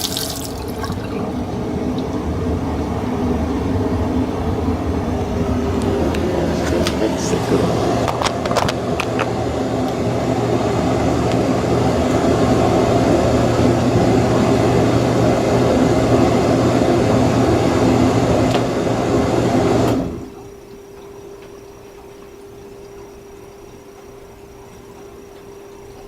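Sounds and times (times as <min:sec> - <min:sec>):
dishwasher spraying water: 0:00.0 - 0:20.4
dishwasher motor hum: 0:00.0 - 0:26.0.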